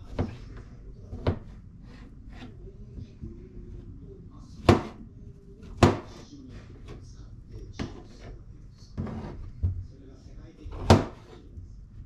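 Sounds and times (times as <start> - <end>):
faint television speech: 0.0 - 12.0
sharp kitchen knocks: 4.6 - 5.0, 5.7 - 6.2, 10.7 - 11.4.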